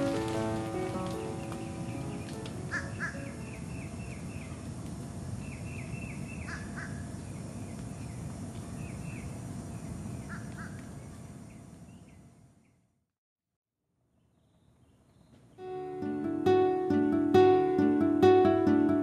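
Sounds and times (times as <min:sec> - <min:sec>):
harsh bird calls: 0:00.0 - 0:04.6, 0:05.4 - 0:07.1
birds chirping: 0:00.0 - 0:12.9.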